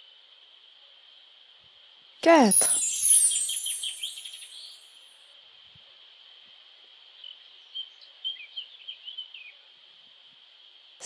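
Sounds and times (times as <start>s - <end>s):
birds chirping: 2.3s - 4.8s
short quick chirps: 2.4s - 4.8s.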